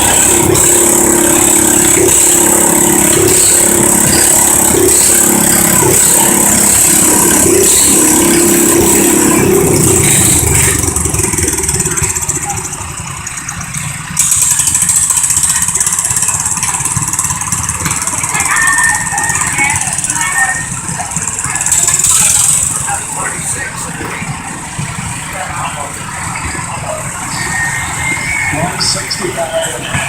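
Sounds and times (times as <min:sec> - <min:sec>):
garden tractor engine running hard: 0:00.0 - 0:30.0.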